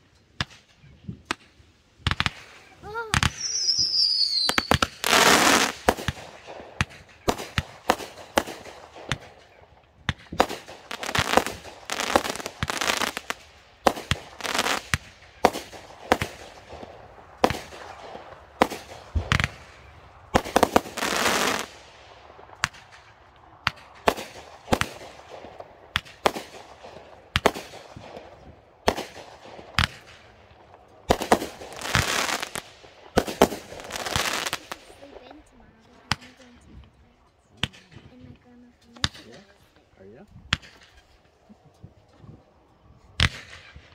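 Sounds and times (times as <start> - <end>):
firework bangs: 0.4 - 36.8, 40.4 - 41.6, 43.0 - 43.9
firework crackling hiss: 2.0 - 30.4, 31.1 - 35.4.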